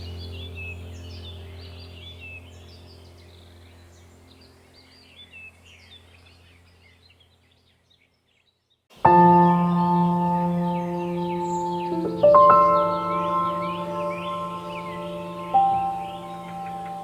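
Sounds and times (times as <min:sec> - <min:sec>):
birds chirping: 0:00.0 - 0:17.0
steady low drone: 0:09.1 - 0:17.0.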